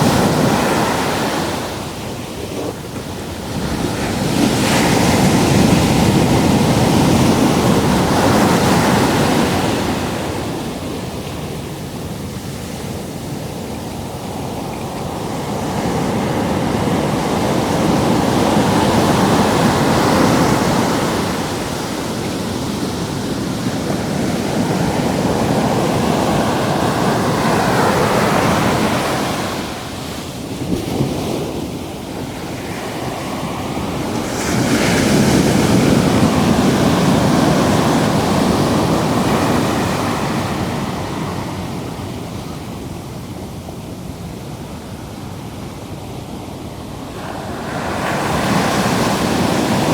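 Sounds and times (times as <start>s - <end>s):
ocean surf breaking: 0.0s - 45.9s, 46.6s - 49.9s
wind on microphone: 0.0s - 45.9s.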